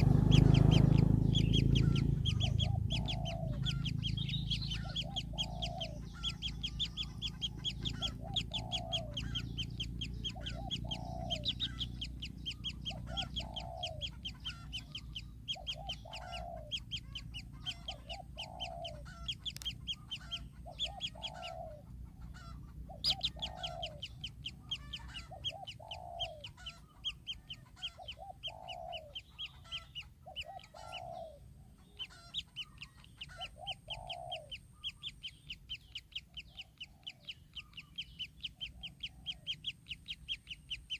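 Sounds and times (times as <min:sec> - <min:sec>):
low rumble: 0:00.0 - 0:21.3.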